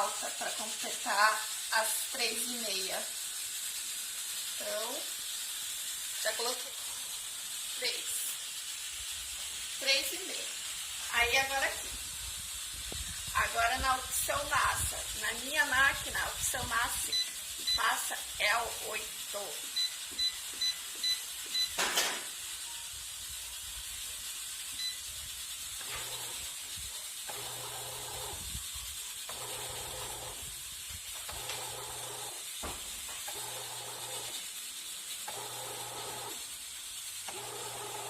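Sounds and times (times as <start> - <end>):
kneading motor humming: 29.3 - 30.4, 37.3 - 38.0.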